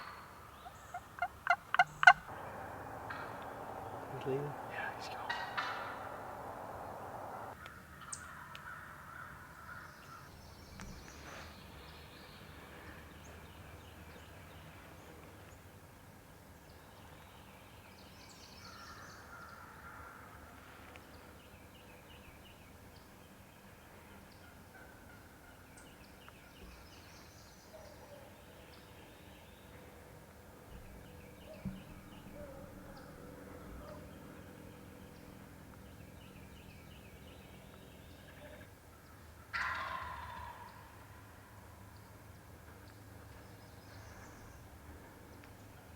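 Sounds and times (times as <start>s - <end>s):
faint turkeys gobbling: 0.0s - 7.6s, 24.4s - 26.0s, 30.7s - 41.4s.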